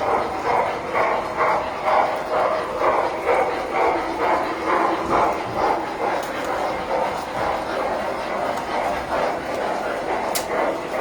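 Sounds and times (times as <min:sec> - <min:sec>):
dog barking: 0:00.9 - 0:07.6.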